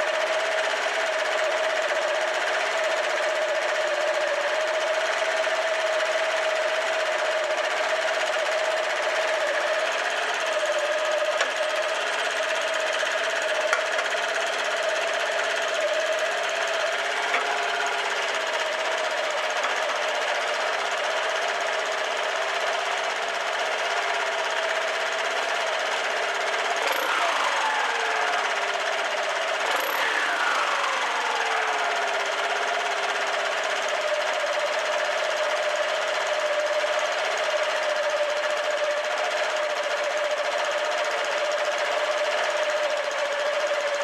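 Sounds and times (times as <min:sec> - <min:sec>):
scooter engine running: 0:00.0 - 0:44.0
fast mechanical rattle: 0:08.7 - 0:35.7.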